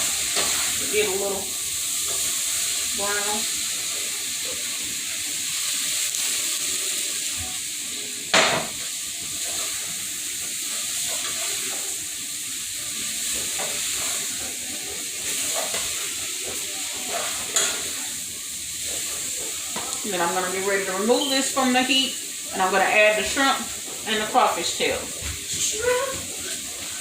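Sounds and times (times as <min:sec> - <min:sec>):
food being stirred: 0:00.0 - 0:05.2, 0:09.2 - 0:12.1, 0:12.9 - 0:20.4
chicken sizzling in a hot pan: 0:00.0 - 0:27.0.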